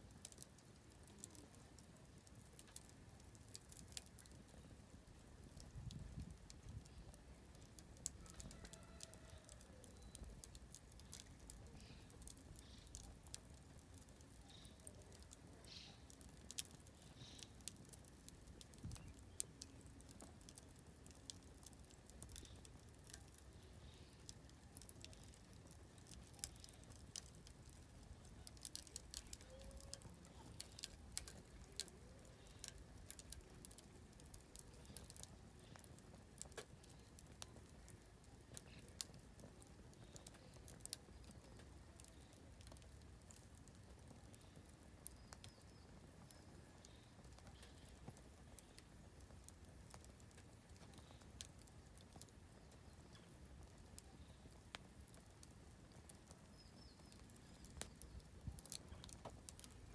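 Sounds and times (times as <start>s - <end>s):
campfire crackling and popping: 0.0s - 59.9s.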